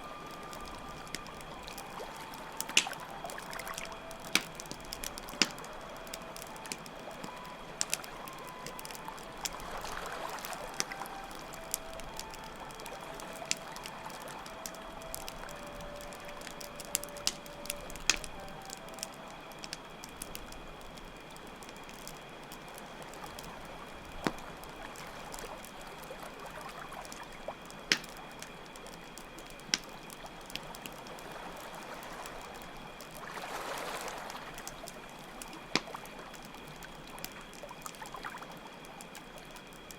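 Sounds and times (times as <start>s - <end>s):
campfire crackling: 0.0s - 39.9s
crickets chirping: 0.0s - 39.9s
faint slow flute melody: 0.0s - 39.9s
running water: 0.0s - 39.9s.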